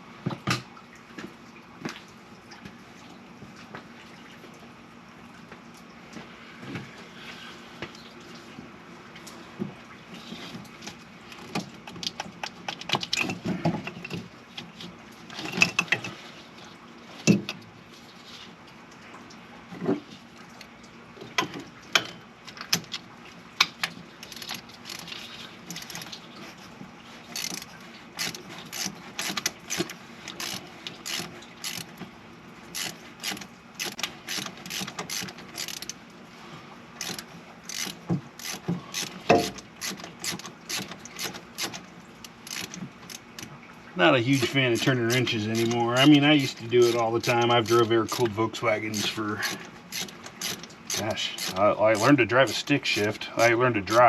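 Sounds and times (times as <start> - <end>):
ratchet wrench clicking: 27.4 - 31.9, 32.8 - 35.9, 37.0 - 41.8, 42.4 - 42.7, 44.4 - 48.2, 49.0 - 52.1
tools knocking on metal: 39.3 - 39.6.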